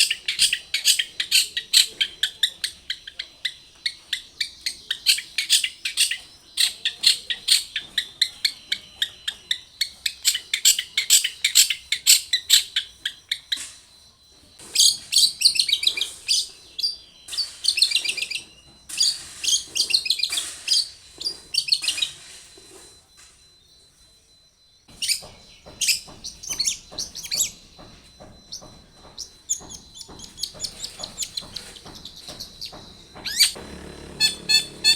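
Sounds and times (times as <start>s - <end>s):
bird chattering phrases: 0.0s - 13.7s, 25.0s - 34.9s
bird sharp high repeated notes: 24.4s - 34.9s.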